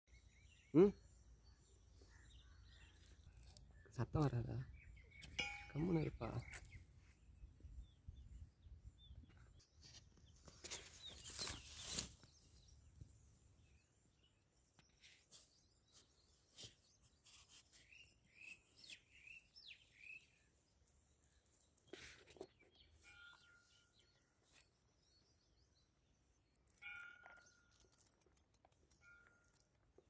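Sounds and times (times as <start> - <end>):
rustling or scraping noises: 9.6 - 12.4, 21.8 - 23.8.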